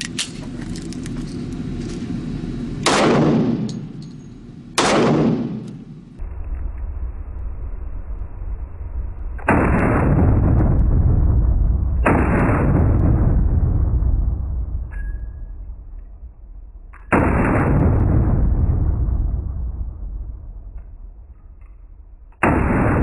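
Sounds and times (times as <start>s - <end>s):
pistol shots with echo: 2.8s - 3.9s, 4.8s - 5.9s
muffled rush of noise: 5.8s - 9.6s.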